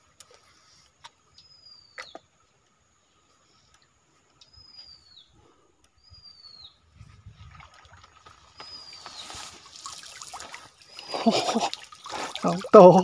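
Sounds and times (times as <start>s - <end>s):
water trickling and dripping: 7.3s - 13.0s.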